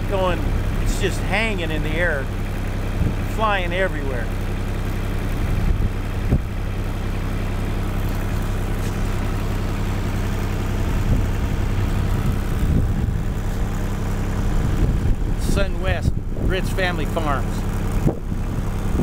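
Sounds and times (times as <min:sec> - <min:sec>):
wind buffeting microphone: 0:03.0 - 0:03.3, 0:05.3 - 0:06.7, 0:08.7 - 0:16.9, 0:17.7 - 0:19.0.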